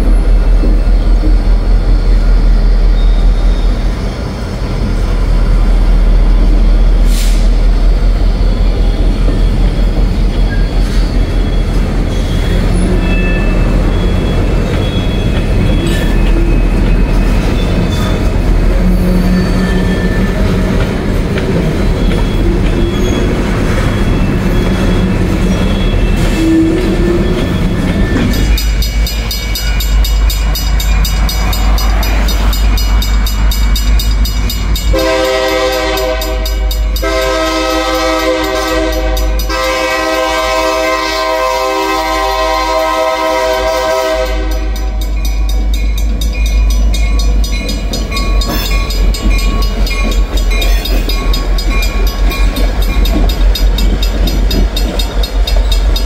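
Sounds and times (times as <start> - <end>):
train rumbling on rails: 0.0 - 56.0
high wheel squeals: 2.0 - 4.9, 8.2 - 20.6, 21.6 - 38.9
crossing bell ringing: 9.5 - 20.7, 24.0 - 41.0, 42.2 - 56.0.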